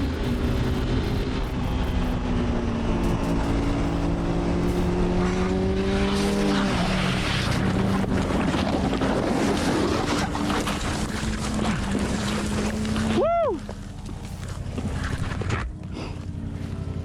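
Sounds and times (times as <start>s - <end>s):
rough rushing noise: 0.0s - 12.9s
motorcycle engine running: 0.0s - 17.0s.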